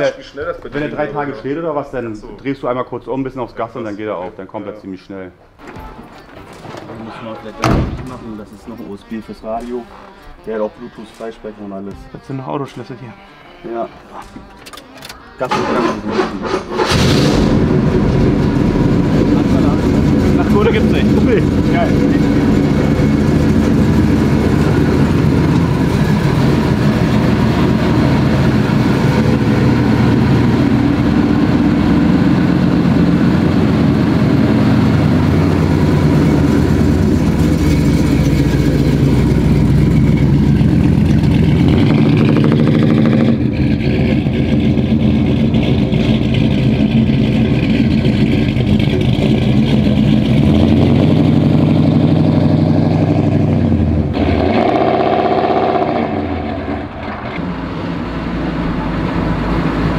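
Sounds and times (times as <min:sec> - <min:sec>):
car engine running loud: 0:15.6 - 0:59.9.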